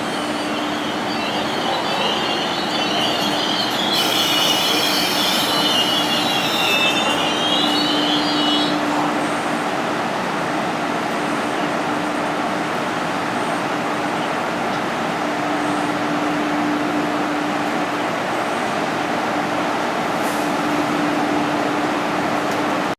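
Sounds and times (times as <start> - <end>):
train wheels squealing: 0.0 - 9.7
train rumbling on rails: 0.0 - 22.9.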